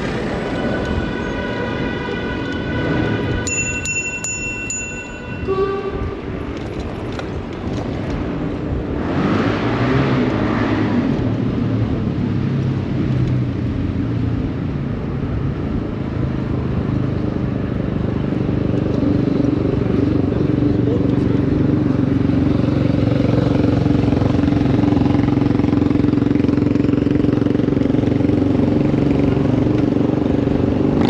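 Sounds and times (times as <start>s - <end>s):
brief pitched tone: 4.8s - 6.2s.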